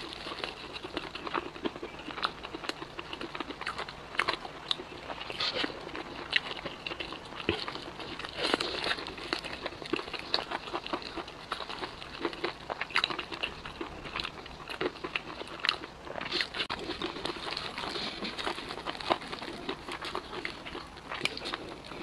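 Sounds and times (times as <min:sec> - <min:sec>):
chewing crispy chicken: 0:00.0 - 0:22.0.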